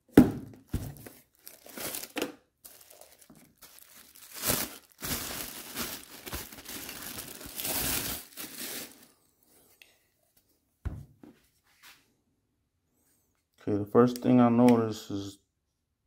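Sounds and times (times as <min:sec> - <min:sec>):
packaging crinkling and rustling: 0:00.5 - 0:09.2.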